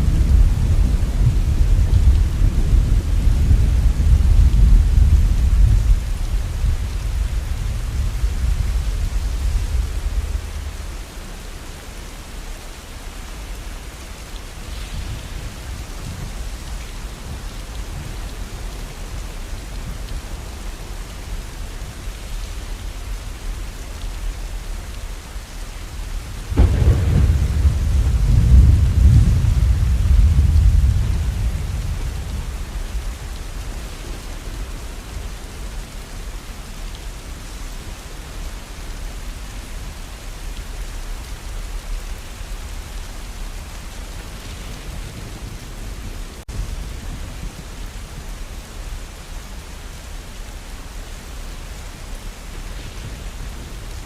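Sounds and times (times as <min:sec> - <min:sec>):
thunder rumbling: 0:00.0 - 0:11.2, 0:26.0 - 0:35.3
steady rain: 0:00.0 - 0:54.0.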